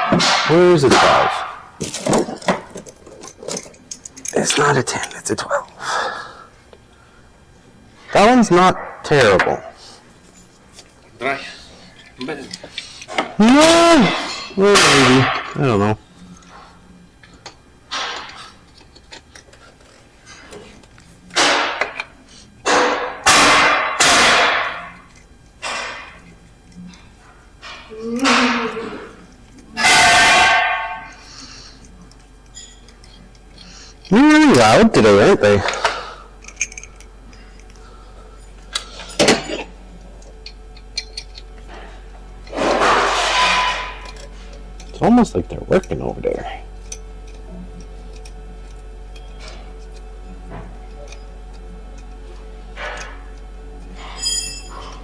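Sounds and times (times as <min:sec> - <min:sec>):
low steady hum: 0:00.0 - 0:55.0
tools clinking and knocking: 0:01.8 - 0:04.4, 0:35.6 - 0:37.8, 0:40.2 - 0:41.8, 0:52.8 - 0:53.2, 0:54.0 - 0:55.0
sudden workshop tool bursts: 0:22.7 - 0:25.0, 0:29.8 - 0:31.2.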